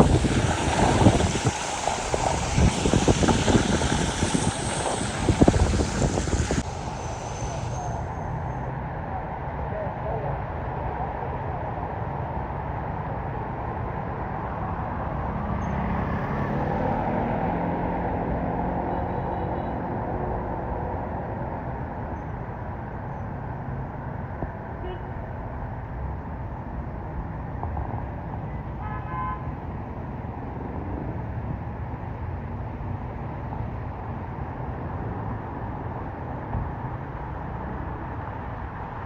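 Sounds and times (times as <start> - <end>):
tyre and rain noise: 0.0 - 8.4
vehicle passing: 0.0 - 8.6
car horn beep: 24.8 - 25.1.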